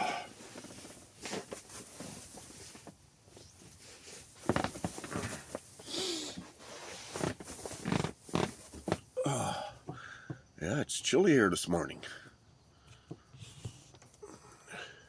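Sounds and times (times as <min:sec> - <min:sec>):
bedding and tent fabric rustling: 0:00.0 - 0:09.2
person grunting: 0:09.2 - 0:09.8
person breathing: 0:09.2 - 0:10.4.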